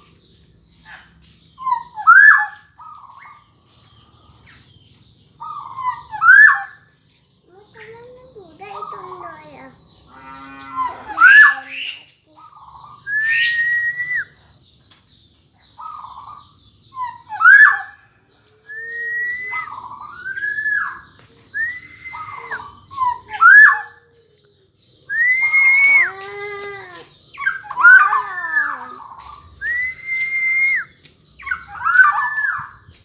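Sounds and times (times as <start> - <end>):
oriole fluty whistles: 13.1 - 14.4, 18.7 - 21.0, 21.6 - 22.8, 25.1 - 26.2, 29.6 - 32.7.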